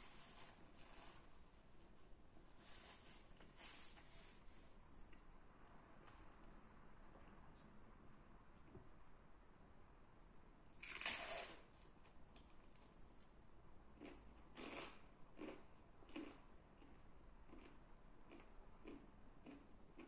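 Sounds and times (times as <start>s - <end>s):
crunchy crust chewing: 14.0s - 20.0s.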